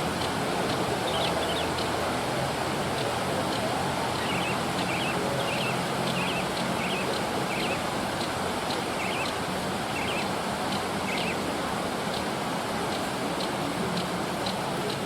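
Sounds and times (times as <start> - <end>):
steady rushing background noise: 0.0 - 15.0
bird wavering call: 4.2 - 7.8, 9.0 - 9.4, 10.0 - 10.3, 11.1 - 11.4.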